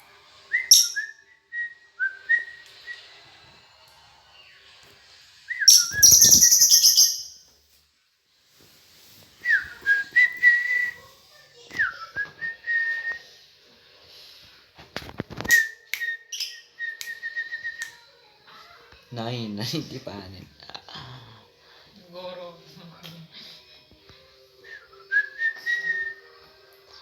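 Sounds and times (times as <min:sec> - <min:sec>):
bird whistled notes: 0:00.6 - 0:01.2, 0:05.6 - 0:07.4
lovebird shrill chatter: 0:05.7 - 0:07.4.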